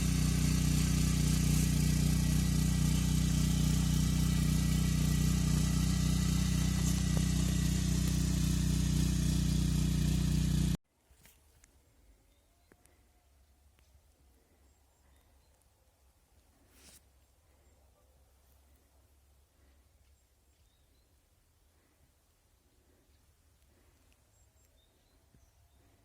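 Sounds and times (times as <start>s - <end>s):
walk-behind tractor engine running: 0.0s - 10.8s.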